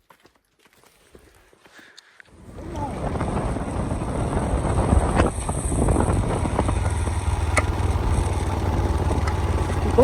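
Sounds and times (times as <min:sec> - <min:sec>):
motorbike engine rumble: 0:02.3 - 0:10.0
wind buffeting microphone: 0:02.4 - 0:10.0.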